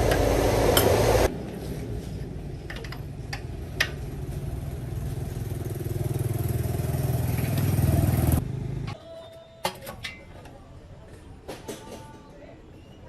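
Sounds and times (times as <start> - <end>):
diesel engine running: 0.0 - 2.4.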